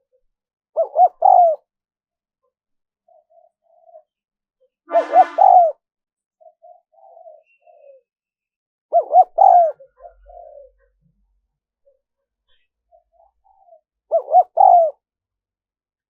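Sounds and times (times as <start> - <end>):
dove cooing: 0.8 - 1.7, 3.0 - 4.1, 4.9 - 5.8, 6.4 - 8.1, 8.9 - 11.0, 12.9 - 15.0.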